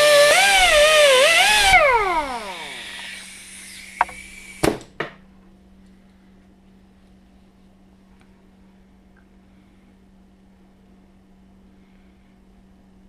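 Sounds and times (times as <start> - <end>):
electric grinder whining: 0.0 - 4.2
faint steady hum: 0.0 - 13.0.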